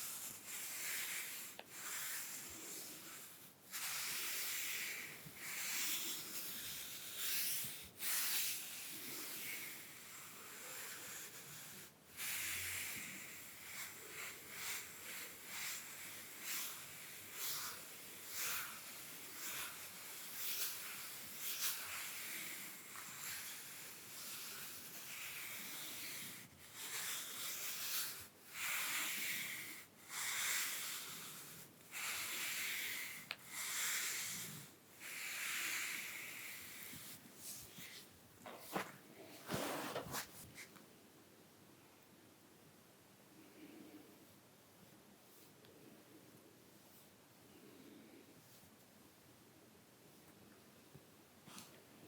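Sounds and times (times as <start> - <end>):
brushes swishing on skin: 0.0 - 40.8.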